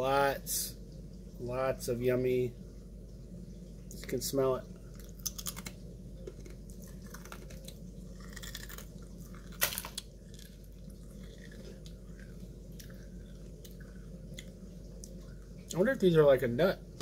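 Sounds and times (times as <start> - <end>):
person crunching dry cereal: 5.0 - 14.5.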